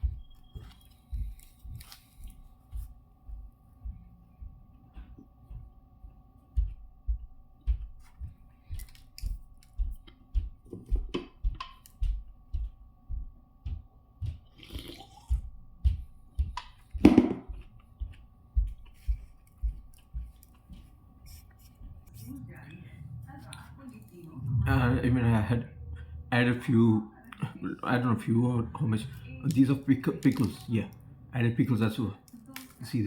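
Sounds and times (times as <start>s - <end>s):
chewing sandwich: 0.2s - 2.9s, 8.0s - 10.2s, 14.3s - 15.5s, 17.7s - 22.4s.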